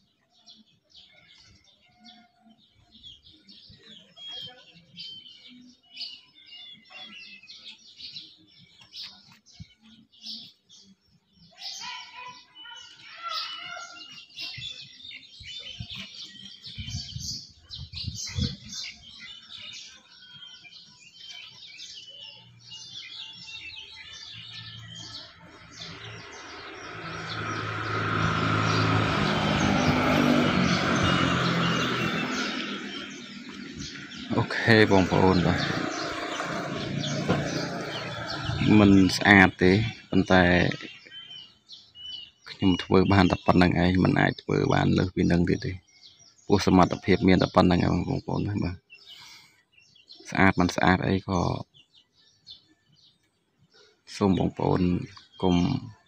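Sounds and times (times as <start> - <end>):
small birds chirping: 0.0 - 56.0
broad rumbling sound: 25.9 - 40.1.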